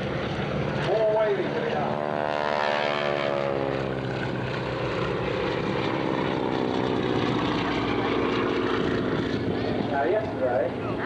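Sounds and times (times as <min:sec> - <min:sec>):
propeller aircraft flying past: 0:00.0 - 0:11.0.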